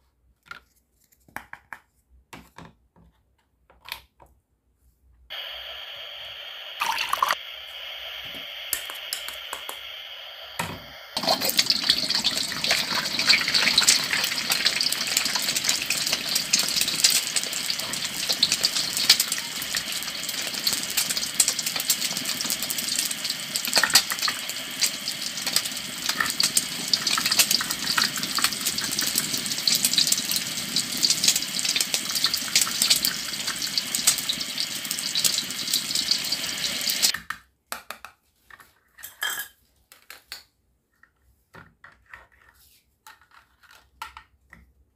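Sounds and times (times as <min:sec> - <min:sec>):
frying sizzle: 0:05.3 - 0:37.1.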